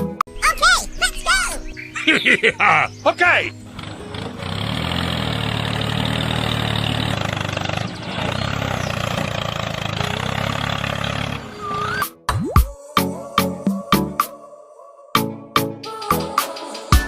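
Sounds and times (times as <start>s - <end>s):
tractor engine idling: 2.9s - 12.0s.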